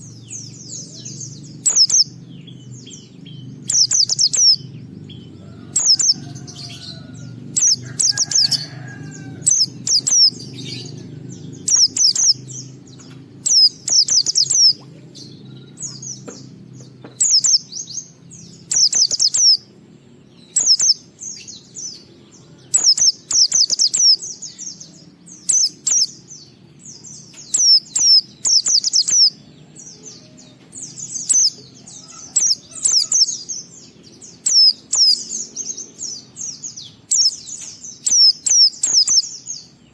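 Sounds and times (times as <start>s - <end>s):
bird twittering: 0.0s - 19.7s, 20.4s - 39.8s
low steady hum: 0.0s - 39.9s.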